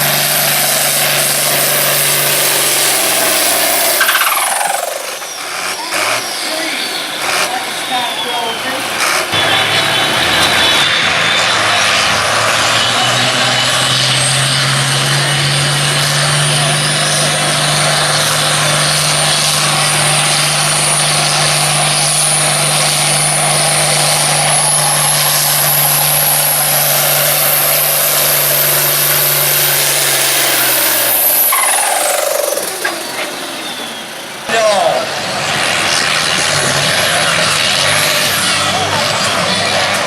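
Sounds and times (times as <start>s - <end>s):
tractor diesel engine under load: 0.0s - 40.0s
high whistle: 3.9s - 8.6s, 31.0s - 34.2s.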